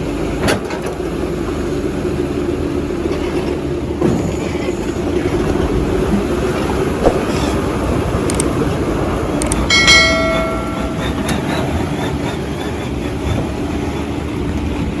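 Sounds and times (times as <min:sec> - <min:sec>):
diesel machinery rumbling: 0:00.0 - 0:15.0
sharp clicks: 0:08.2 - 0:08.6, 0:09.4 - 0:09.7
ringing metallic clang: 0:09.7 - 0:11.9.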